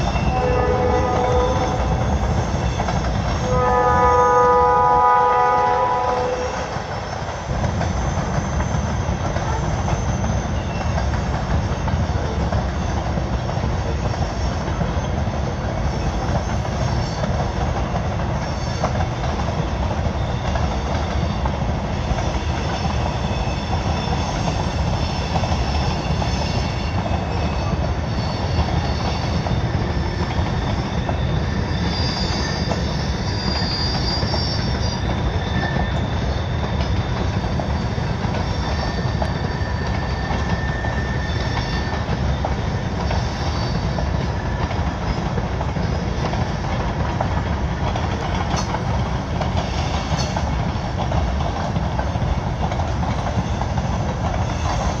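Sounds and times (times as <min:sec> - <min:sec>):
high wheel squeals: 0:00.0 - 0:13.2, 0:13.8 - 0:46.8
freight train rumbling past: 0:00.0 - 0:55.0.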